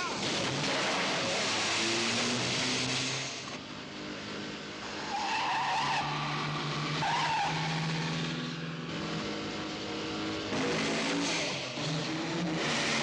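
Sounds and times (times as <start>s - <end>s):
car engines running hard: 0.0s - 13.0s.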